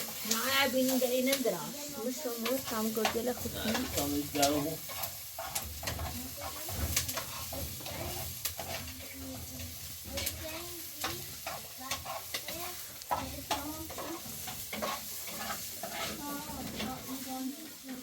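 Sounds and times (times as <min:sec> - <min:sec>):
crackling with sharp clicks: 0:00.0 - 0:01.6, 0:02.4 - 0:16.0.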